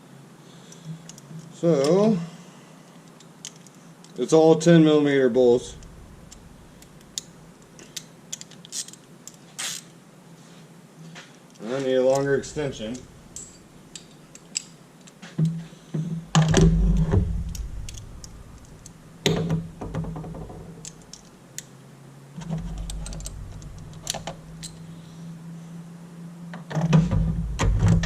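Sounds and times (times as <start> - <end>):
steady low hum: 0.0 - 8.4, 10.0 - 28.0
metal hand tools clinking: 12.1 - 14.8, 22.8 - 24.9
heavier knocks: 15.5 - 18.6, 19.2 - 20.8, 26.9 - 28.0.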